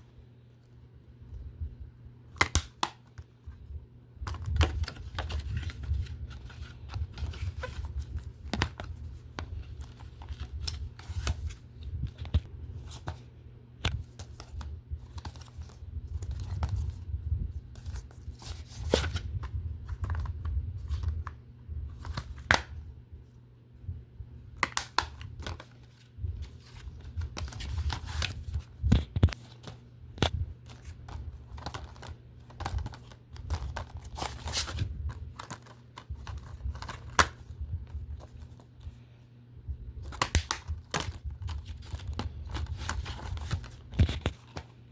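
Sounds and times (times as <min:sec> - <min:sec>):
plastic cases clicking and crinkling: 0:26.6 - 0:37.5, 0:40.0 - 0:44.7.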